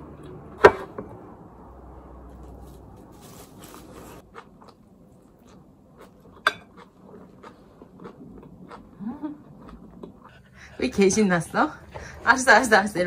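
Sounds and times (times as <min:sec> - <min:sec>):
biting and chewing bread: 0:03.7 - 0:10.3.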